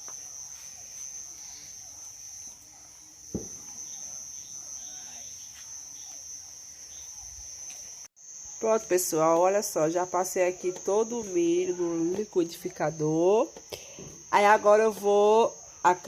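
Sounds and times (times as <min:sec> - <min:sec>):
crickets chirring: 0:00.0 - 0:16.0
dull knock: 0:03.3 - 0:03.6.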